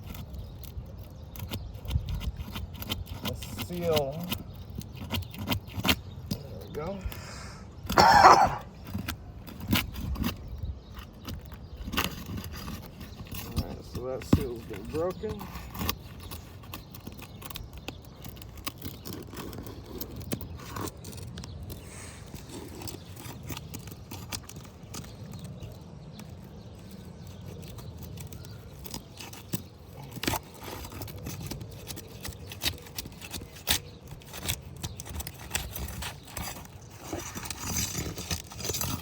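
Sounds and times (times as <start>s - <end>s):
tool scraping under roof shingles: 0.0s - 39.0s.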